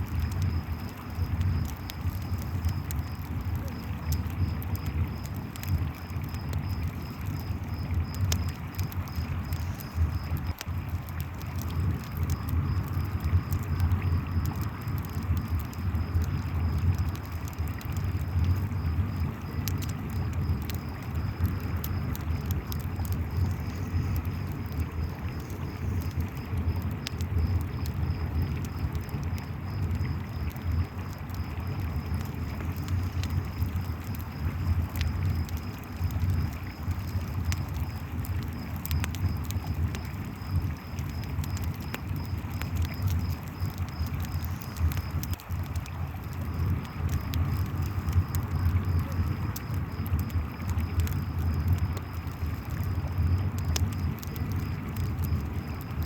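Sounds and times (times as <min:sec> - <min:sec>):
campfire crackling and popping: 0:00.0 - 0:56.0
crickets chirping: 0:00.0 - 0:56.0.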